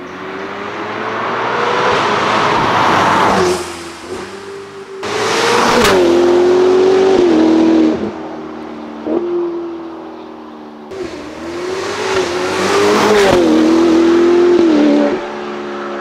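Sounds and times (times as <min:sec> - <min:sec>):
sports car engine revving: 0:10.9 - 0:16.0.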